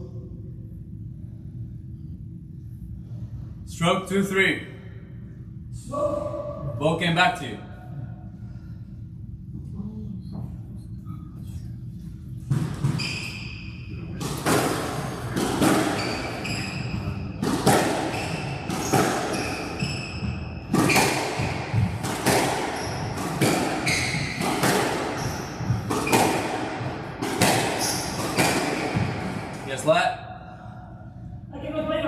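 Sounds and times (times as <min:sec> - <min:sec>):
shoes squeaking on court floor: 0:12.6 - 0:14.4, 0:15.0 - 0:21.6, 0:22.7 - 0:24.5, 0:25.1 - 0:26.4, 0:27.7 - 0:29.3
squash ball cracking off rackets: 0:17.4 - 0:19.7, 0:20.7 - 0:29.6.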